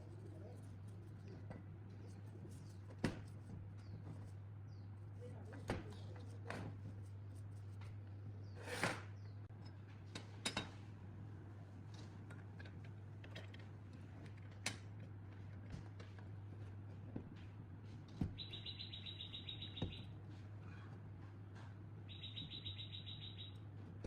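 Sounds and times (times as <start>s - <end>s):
brief scrape: 8.5s - 9.1s.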